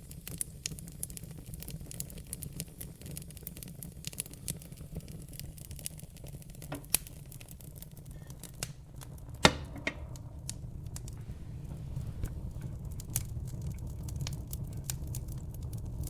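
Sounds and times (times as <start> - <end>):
fire crackling and popping: 0.0 - 16.0
low rumble of fire: 0.0 - 16.0.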